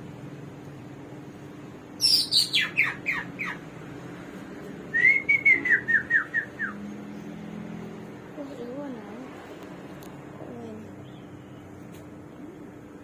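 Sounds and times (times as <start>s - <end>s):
bird singing whistled phrases: 2.0s - 3.6s, 4.9s - 6.8s.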